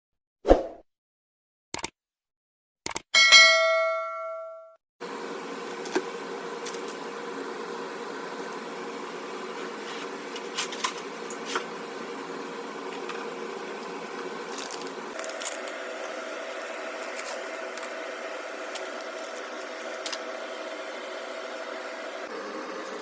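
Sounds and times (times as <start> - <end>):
steady machine hum: 5.0 - 23.0.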